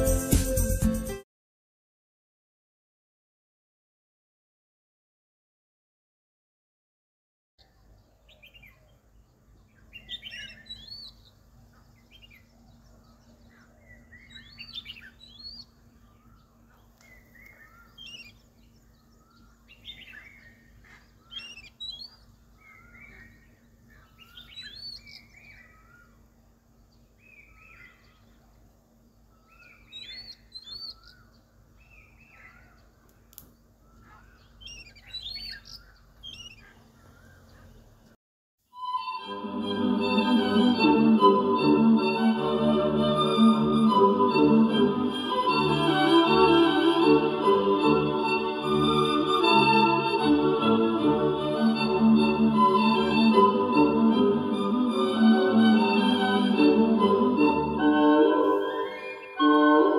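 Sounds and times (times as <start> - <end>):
wild birds chirping: 7.6 - 38.2, 57.8 - 59.9.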